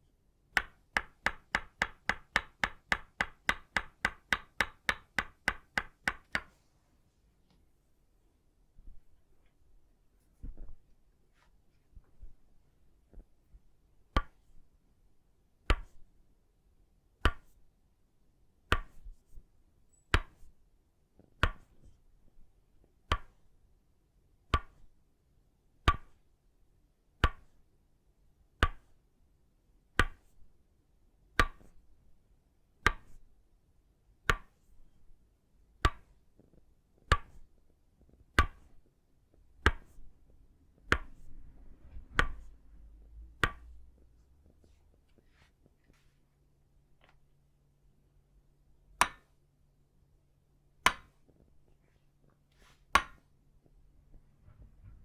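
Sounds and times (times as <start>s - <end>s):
wooden mallet striking wooden peg: 0.6s - 6.5s, 38.4s - 38.7s, 40.8s - 41.2s, 42.1s - 42.5s, 43.4s - 43.8s, 49.0s - 49.3s, 50.8s - 51.2s, 52.9s - 53.2s.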